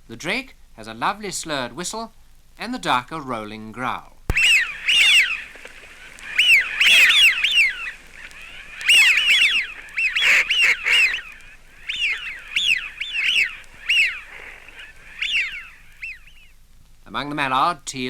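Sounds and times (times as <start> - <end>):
ducks whistling: 4.3 - 16.6.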